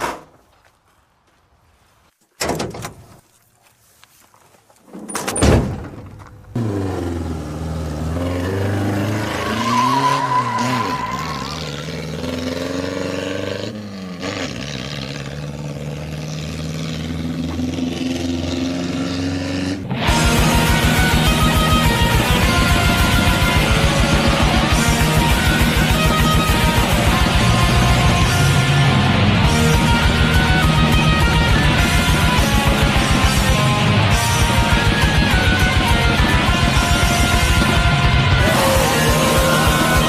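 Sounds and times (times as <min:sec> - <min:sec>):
sharp thuds: 0:04.9 - 0:06.6
vehicle engine running: 0:06.1 - 0:09.4, 0:11.2 - 0:40.0
distorted guitar music: 0:19.9 - 0:40.0.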